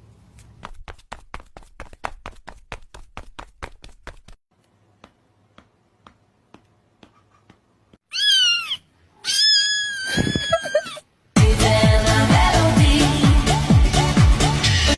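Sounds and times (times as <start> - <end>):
quick taps: 0.5 - 4.4, 5.0 - 8.0
cat meowing: 8.1 - 11.0.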